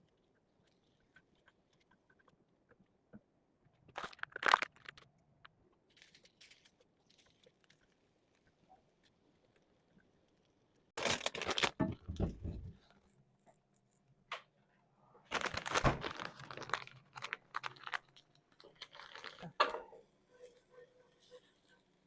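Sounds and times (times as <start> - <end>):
loud crunching crinkling: 3.8 - 11.9, 15.3 - 19.6.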